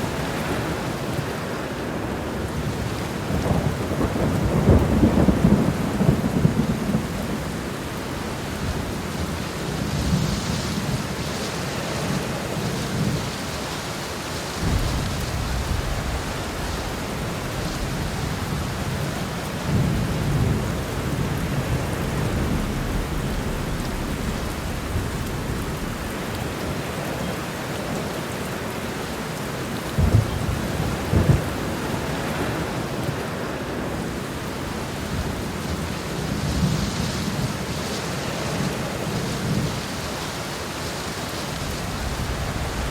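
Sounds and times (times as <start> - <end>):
heavy rain falling: 0.0 - 42.9
thunder rumbling: 2.1 - 11.5, 14.5 - 28.0, 29.9 - 37.8, 41.6 - 42.9
sharp thunderclaps: 14.6 - 27.0, 30.0 - 31.7.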